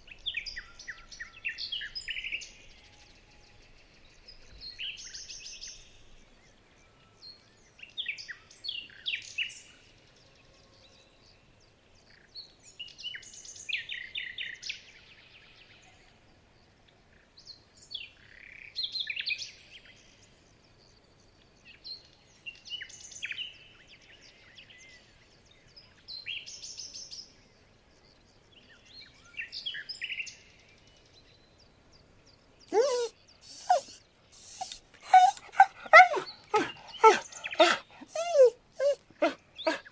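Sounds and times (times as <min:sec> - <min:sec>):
bird chirps: 0:32.6 - 0:39.9
dog whining: 0:32.7 - 0:39.9.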